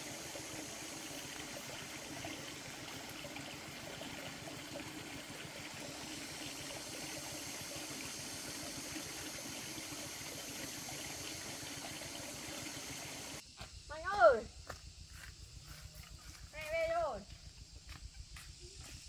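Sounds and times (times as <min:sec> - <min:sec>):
running water rushing: 0:00.0 - 0:13.4.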